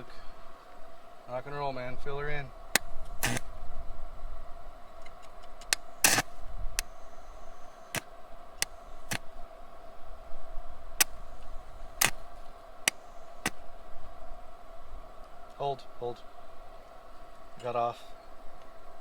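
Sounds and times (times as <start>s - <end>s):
arc welder crackling: 2.7s - 3.6s, 5.6s - 9.3s, 11.0s - 13.6s
welder hum: 2.8s - 3.6s, 5.7s - 9.4s.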